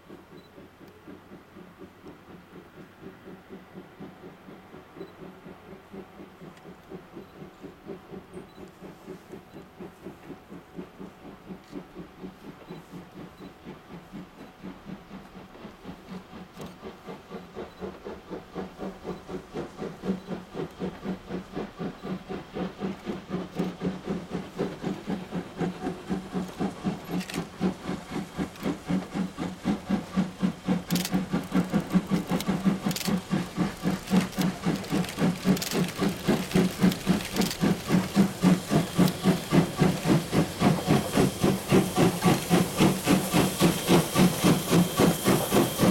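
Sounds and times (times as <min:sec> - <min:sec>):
steam locomotive chuffing: 0:00.0 - 0:45.9
sharp clicks: 0:30.8 - 0:40.8.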